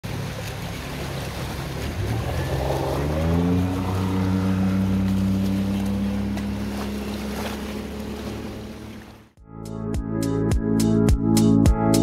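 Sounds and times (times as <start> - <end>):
wind and water rushing: 0.0 - 9.4
speedboat engine revving: 0.1 - 9.3.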